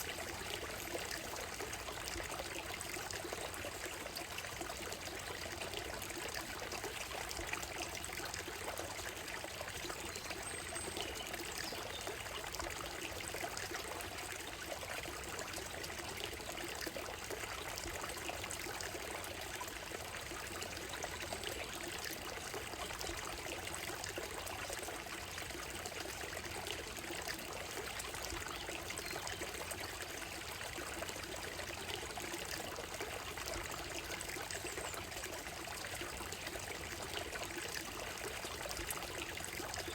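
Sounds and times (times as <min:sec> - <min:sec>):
stream flowing over stones: 0:00.0 - 0:39.9.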